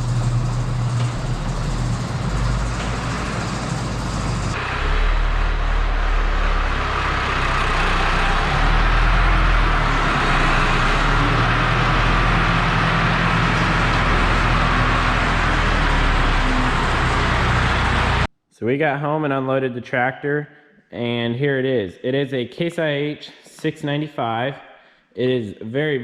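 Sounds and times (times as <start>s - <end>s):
diesel engine running: 0.0s - 18.3s.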